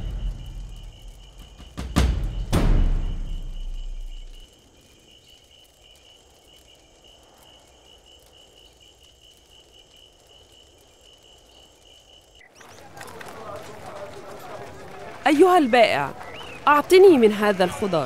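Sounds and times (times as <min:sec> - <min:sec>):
low steady hiss: 0:00.0 - 0:12.6
cricket chirping: 0:00.0 - 0:17.8.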